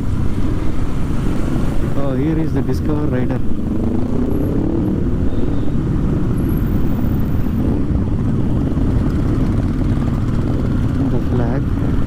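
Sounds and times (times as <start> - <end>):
wind noise on microphone: 0.0 - 12.0
motorcycle engine running: 3.4 - 12.0.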